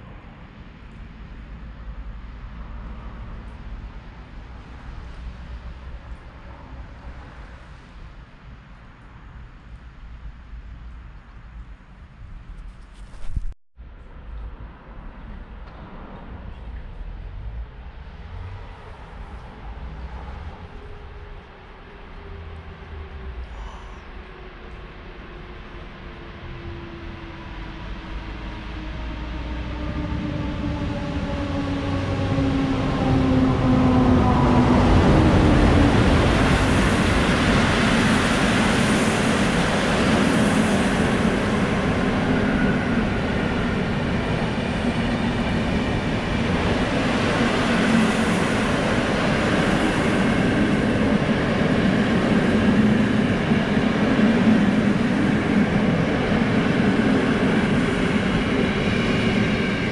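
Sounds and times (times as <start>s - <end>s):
coaches rumbling and rattling on rails: 10.8s - 59.9s.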